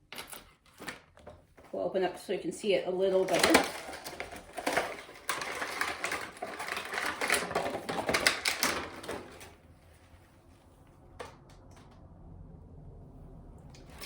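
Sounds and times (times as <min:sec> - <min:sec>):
packaging rustling and crinkling: 0:03.1 - 0:10.2.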